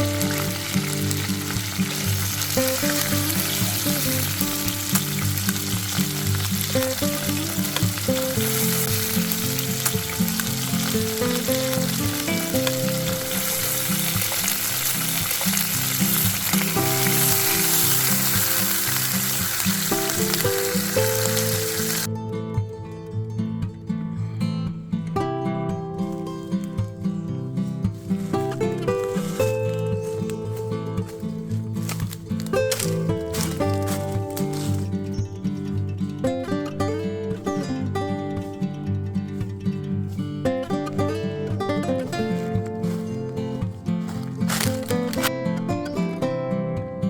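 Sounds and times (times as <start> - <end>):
meat sizzling: 0.0 - 22.1, 28.0 - 35.2, 40.0 - 45.3
background music: 0.0 - 47.0.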